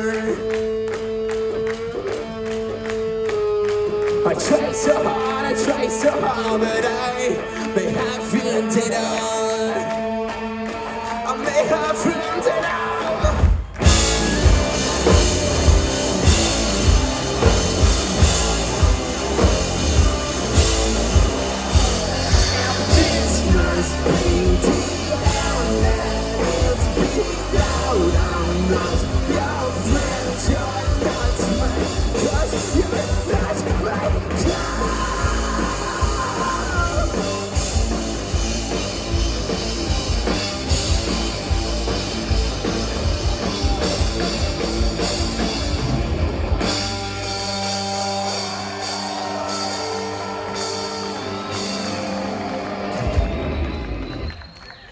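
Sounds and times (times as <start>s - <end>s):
rock band playing loud: 0.0s - 54.7s
electric guitars: 0.0s - 54.9s
person singing: 4.2s - 15.7s, 17.4s - 37.9s
drum kit beat: 12.7s - 53.6s.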